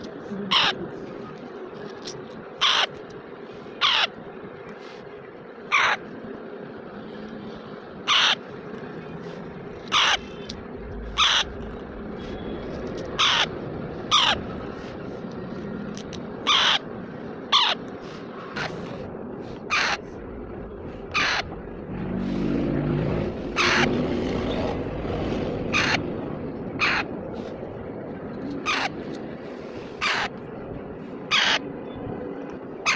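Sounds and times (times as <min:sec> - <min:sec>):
low background hum: 0:00.0 - 0:32.9
parrot squawking: 0:00.5 - 0:00.8, 0:02.6 - 0:02.9, 0:08.1 - 0:08.4, 0:09.9 - 0:10.5, 0:11.1 - 0:11.7, 0:13.1 - 0:14.6, 0:16.4 - 0:16.9, 0:17.5 - 0:17.8, 0:19.7 - 0:20.1, 0:21.1 - 0:21.5, 0:23.4 - 0:24.8, 0:25.6 - 0:26.0, 0:26.8 - 0:27.1, 0:28.6 - 0:29.0, 0:30.0 - 0:30.3, 0:31.3 - 0:31.6.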